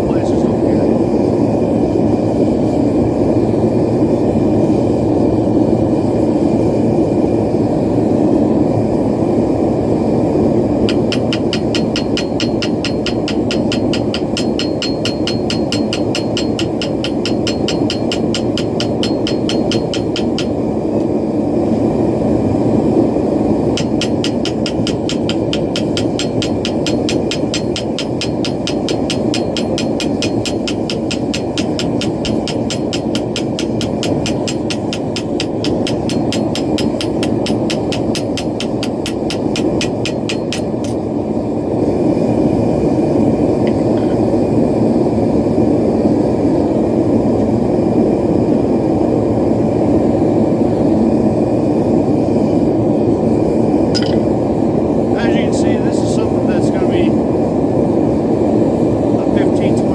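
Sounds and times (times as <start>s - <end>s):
hammer tapping on steel: 10.9s - 20.6s, 23.7s - 41.0s, 54.0s - 54.4s.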